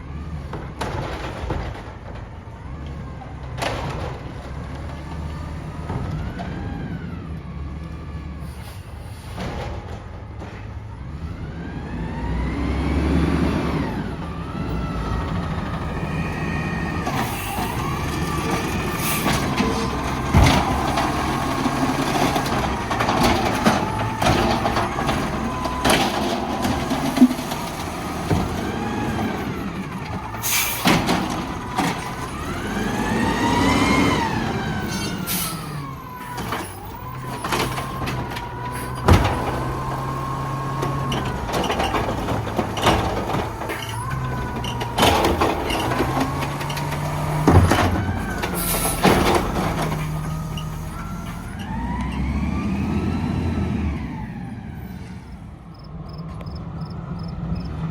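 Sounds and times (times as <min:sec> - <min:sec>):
garbage truck engine revving: 0:00.0 - 0:55.6
metal bangs and clanks: 0:15.6 - 0:32.7, 0:34.8 - 0:52.3.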